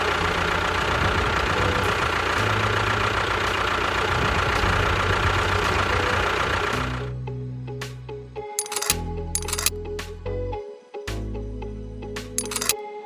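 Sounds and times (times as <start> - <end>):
engine running with low rattle: 0.0 - 7.7, 8.6 - 9.9, 12.4 - 12.8.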